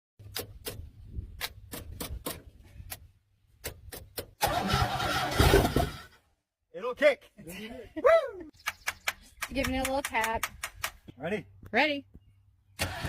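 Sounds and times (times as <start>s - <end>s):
car engine cranking on starter: 4.4s - 6.1s, 12.8s - 13.0s.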